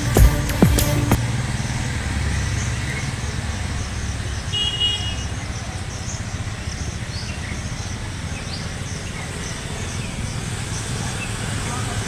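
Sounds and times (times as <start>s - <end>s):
high steady tone: 0.0s - 1.2s.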